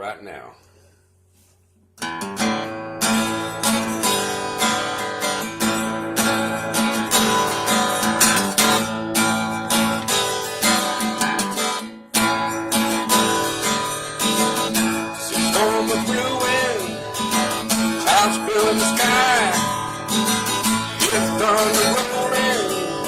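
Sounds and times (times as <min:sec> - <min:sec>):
acoustic guitar strumming: 0:02.0 - 0:23.0.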